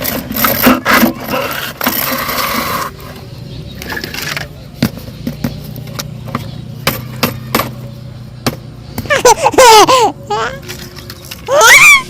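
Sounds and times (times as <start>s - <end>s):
plastic scraping: 0.0s - 7.8s
plastic toys clattering: 0.0s - 7.8s, 9.1s - 12.0s.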